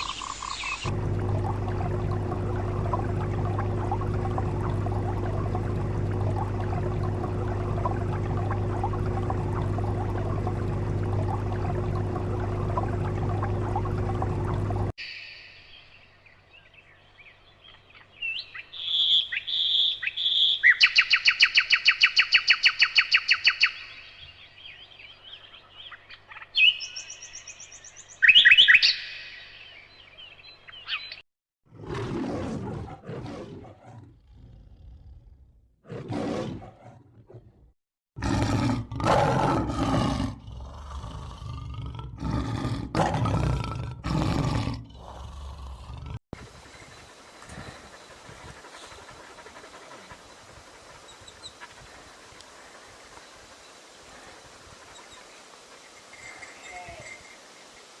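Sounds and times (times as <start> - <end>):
birds chirping: 0.0 - 31.2, 46.4 - 58.0
large animal roaring: 31.7 - 37.4, 38.2 - 46.2.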